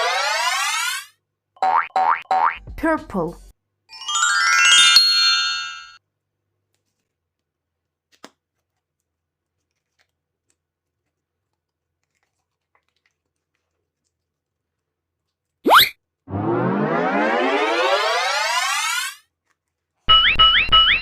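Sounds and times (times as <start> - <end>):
rising ringing chime notes: 3.9 - 6.0, 16.3 - 19.2.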